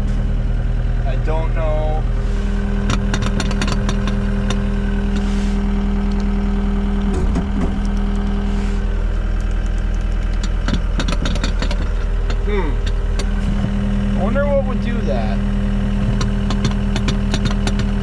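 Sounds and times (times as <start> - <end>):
diesel engine idling: 0.0 - 18.0
small clicks and knocks: 2.9 - 4.6, 9.4 - 13.7, 16.0 - 18.0.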